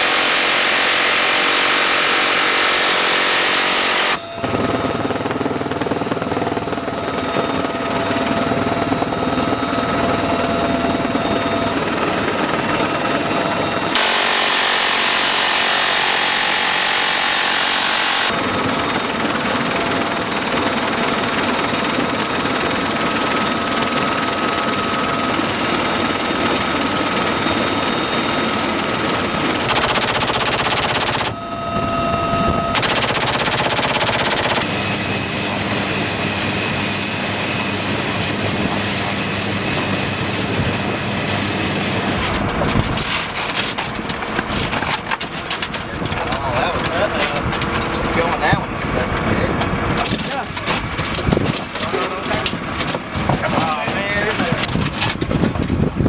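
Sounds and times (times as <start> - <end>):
helicopter noise: 0.0 - 56.0
machine-gun fire: 13.9 - 18.4, 29.7 - 31.4, 32.8 - 34.8.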